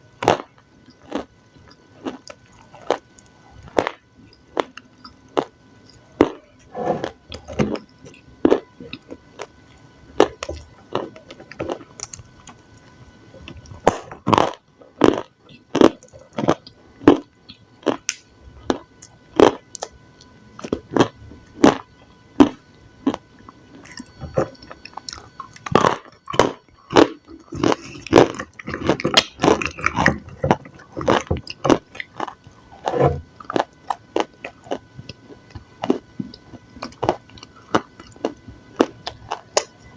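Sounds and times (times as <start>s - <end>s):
biting and chewing: 0.2s - 39.8s.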